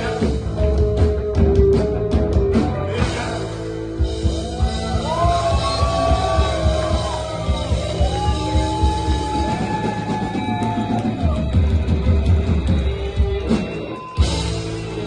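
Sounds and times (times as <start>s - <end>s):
rock band playing: 0.0s - 15.0s
kick drum beat: 4.4s - 13.5s.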